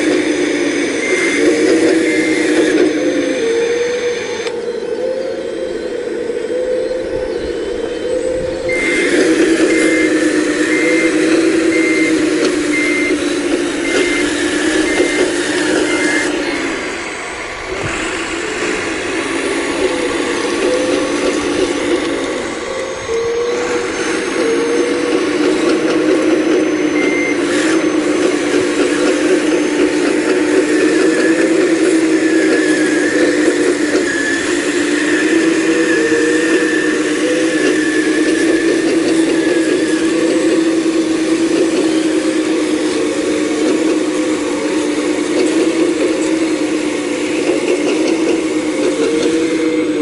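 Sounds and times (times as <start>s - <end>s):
alarm beeping: 0.0s - 50.0s
excavator engine and hydraulics: 0.0s - 50.0s.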